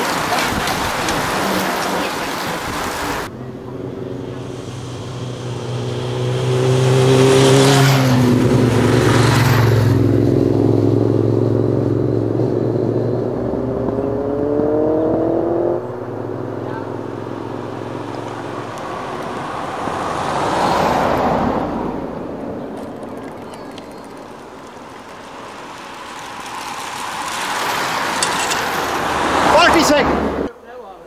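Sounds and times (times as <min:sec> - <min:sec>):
bicycles rushing past: 0:00.0 - 0:30.5
car engine passing: 0:00.0 - 0:30.6.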